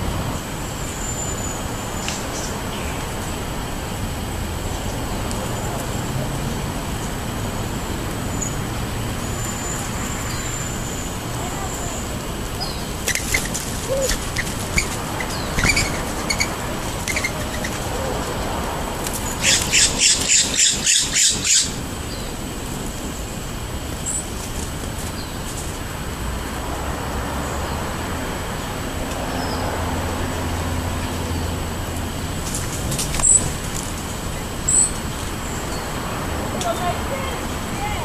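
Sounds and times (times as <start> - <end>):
traffic noise: 0.0 - 38.0
small birds chirping: 4.7 - 22.4, 32.5 - 38.0.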